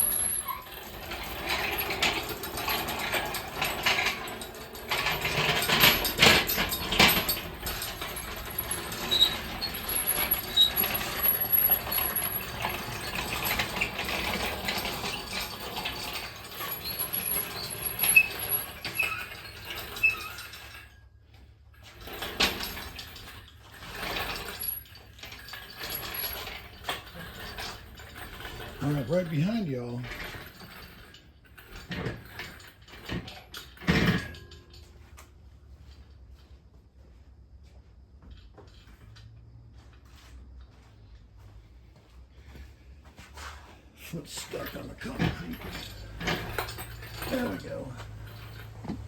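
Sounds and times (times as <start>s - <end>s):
metallic clicks and clinks: 44.3s - 49.0s.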